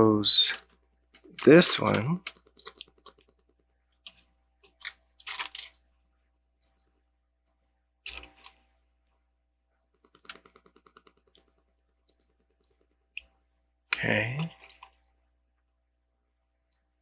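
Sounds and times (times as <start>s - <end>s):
plastic bricks clicking: 0.5s - 5.8s.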